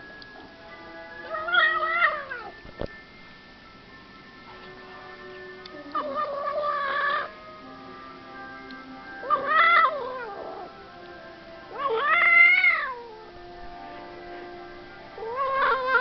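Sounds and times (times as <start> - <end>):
cat yowling: 1.2 - 2.5, 5.9 - 7.3, 9.2 - 10.7, 11.7 - 13.3, 15.2 - 16.0.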